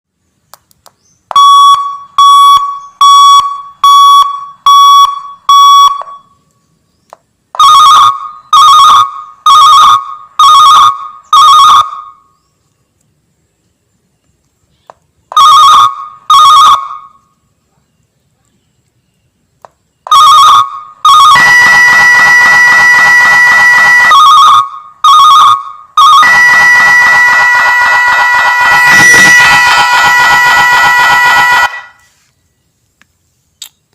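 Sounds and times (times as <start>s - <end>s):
short electronic beeps: 1.3s - 6.4s
warbling alarm tone: 20.1s - 32.0s
bell-like alarm tones: 22.8s - 32.0s.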